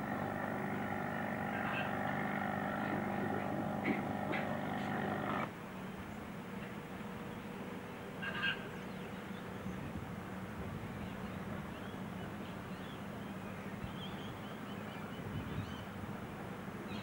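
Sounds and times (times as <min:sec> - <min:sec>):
steady low hum: 0:00.0 - 0:05.5.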